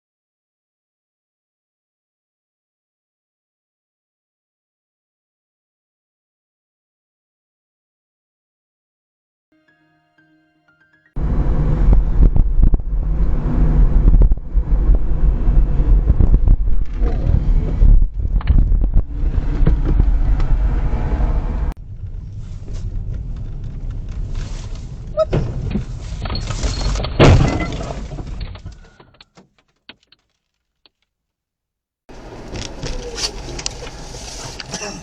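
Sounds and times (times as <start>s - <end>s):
car interior road rumble: 11.2s - 28.7s, 32.1s - 35.0s
vehicle crash with shattering: 25.4s - 29.0s.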